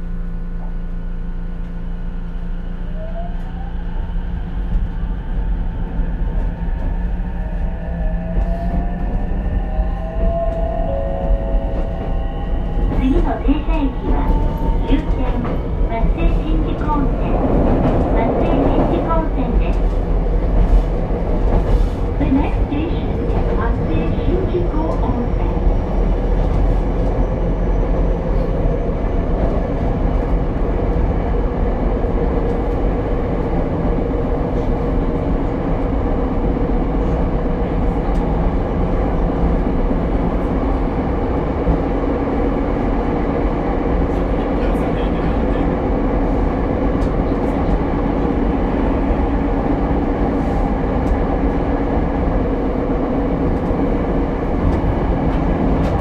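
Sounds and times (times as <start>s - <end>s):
wheels rumbling on rail: 0.0s - 56.0s.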